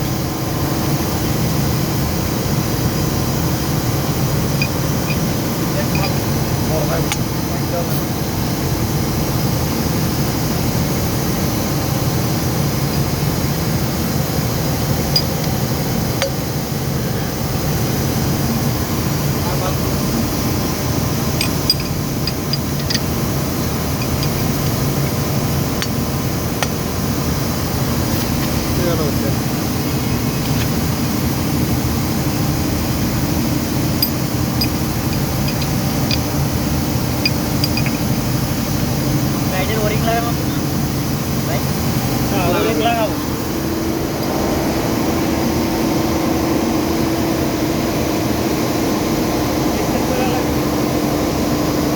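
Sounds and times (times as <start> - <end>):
machinery droning: 0.4 - 51.9
light metallic clinks: 4.6 - 6.3, 15.1 - 15.6, 21.3 - 25.2, 33.9 - 36.5, 37.2 - 38.2
faint metal clicks: 21.4 - 23.2, 37.2 - 38.1.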